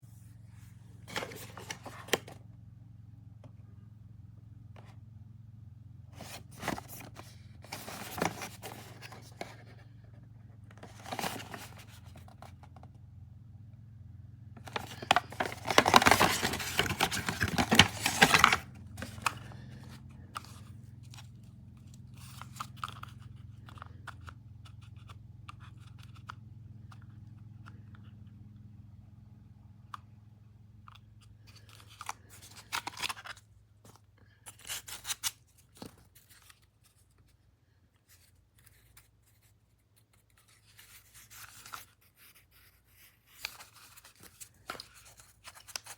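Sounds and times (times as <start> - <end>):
packaging rustling and tearing: 1.1 - 2.4, 6.2 - 9.7, 10.7 - 12.6, 14.6 - 20.6.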